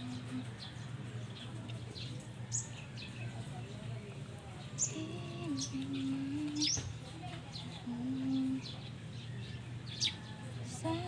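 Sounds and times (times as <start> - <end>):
small birds chirping: 0.0 - 11.0
steady low hum: 3.8 - 10.0.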